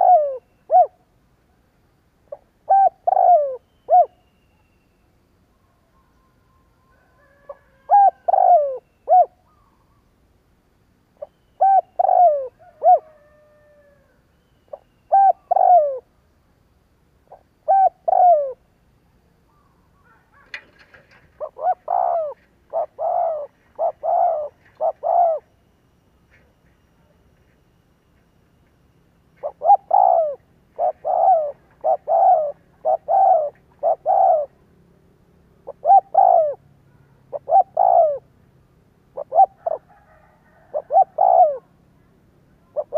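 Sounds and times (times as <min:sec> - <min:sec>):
dove cooing: 0:00.0 - 0:01.1, 0:02.3 - 0:04.2, 0:06.9 - 0:10.0, 0:11.2 - 0:16.1, 0:17.2 - 0:18.7, 0:19.5 - 0:25.6, 0:29.4 - 0:34.7, 0:35.6 - 0:38.4, 0:39.1 - 0:41.9, 0:42.6 - 0:42.9.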